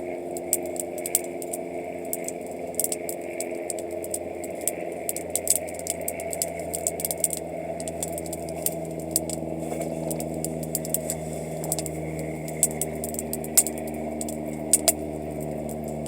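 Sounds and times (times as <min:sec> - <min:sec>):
campfire crackling and popping: 0:00.0 - 0:16.0
low hum: 0:00.0 - 0:16.0.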